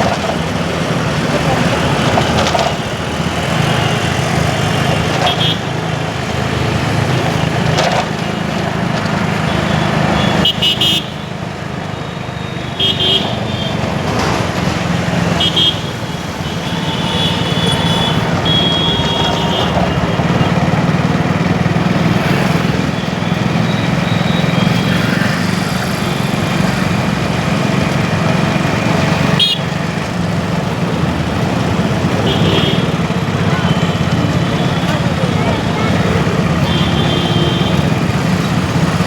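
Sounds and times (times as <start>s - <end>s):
street traffic rumble: 0.0s - 39.0s
vehicle horns honking: 1.8s - 6.0s, 9.3s - 14.0s, 15.1s - 21.2s, 29.2s - 30.0s, 31.6s - 39.0s.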